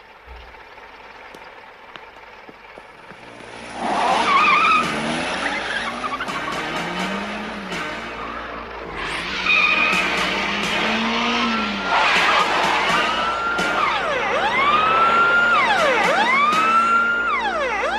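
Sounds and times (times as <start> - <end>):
car engine revving: 3.0 - 17.9
tyres squealing: 3.7 - 7.0, 8.0 - 17.8.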